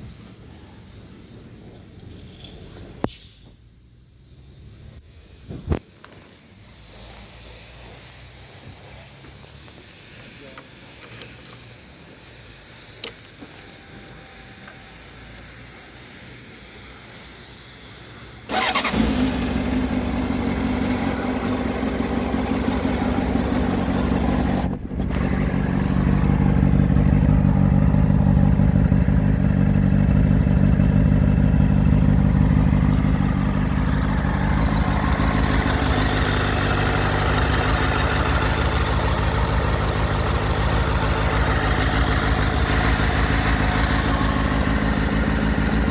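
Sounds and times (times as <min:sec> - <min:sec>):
motorcycle engine starting and idling: 0:18.4 - 0:45.9.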